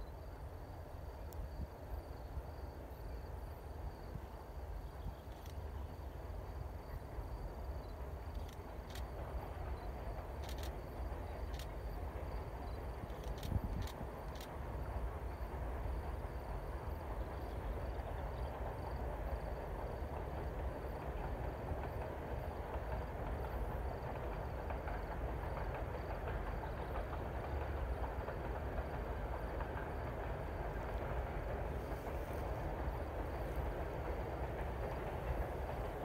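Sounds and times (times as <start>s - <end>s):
train wheels on rails: 0.0s - 36.0s.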